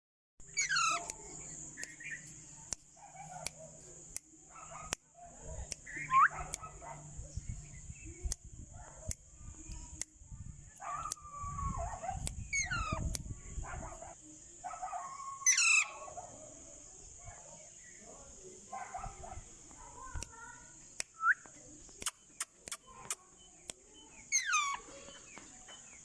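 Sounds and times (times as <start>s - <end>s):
parakeets chattering: 0.4s - 2.4s, 12.4s - 13.1s, 15.4s - 16.1s, 24.1s - 26.0s
whistled parakeet shrieks: 0.5s - 1.1s, 12.5s - 13.0s, 15.4s - 16.0s, 24.3s - 24.8s
sharp clicks: 20.1s - 23.8s.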